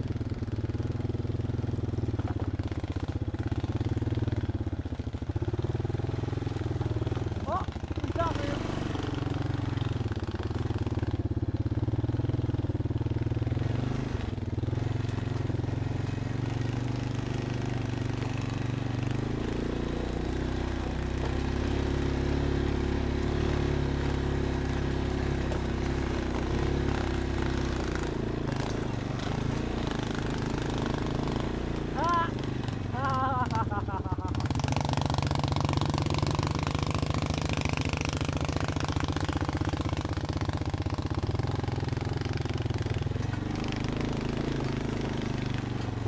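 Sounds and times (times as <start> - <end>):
vehicle engine running at low revs: 0.0 - 46.0.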